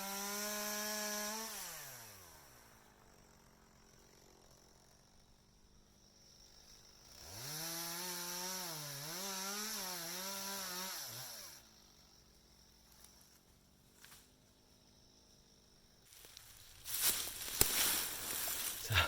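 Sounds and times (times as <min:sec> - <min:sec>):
chainsaw revving: 0:00.0 - 0:05.1, 0:06.8 - 0:12.0.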